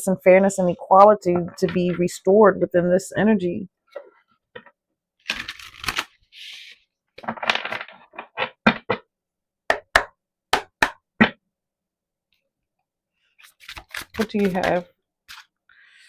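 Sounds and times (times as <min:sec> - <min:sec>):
cards rustling: 0:13.4 - 0:15.5.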